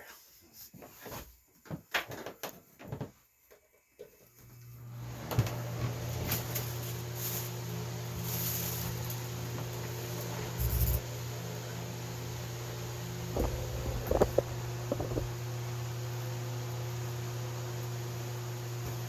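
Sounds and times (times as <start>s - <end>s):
exhaust fan humming: 5.2s - 19.0s.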